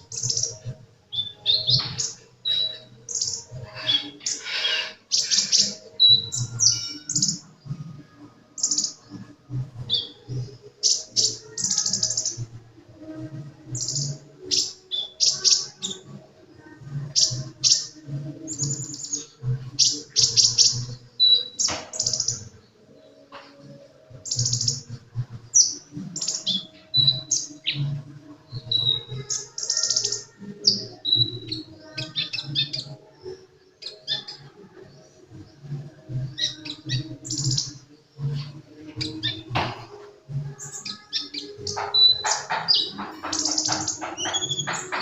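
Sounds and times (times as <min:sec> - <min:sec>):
bird chirping and trilling: 0:00.1 - 0:07.5, 0:33.8 - 0:34.4, 0:36.3 - 0:39.6, 0:40.5 - 0:45.0.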